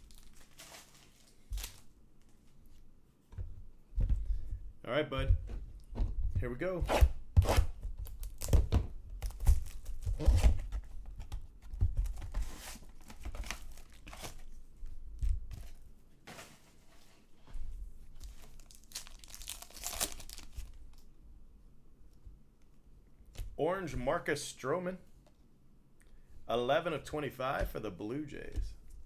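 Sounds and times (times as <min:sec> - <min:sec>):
wrappers tearing and crinkling: 0:00.0 - 0:01.9, 0:12.6 - 0:14.5, 0:18.3 - 0:21.0.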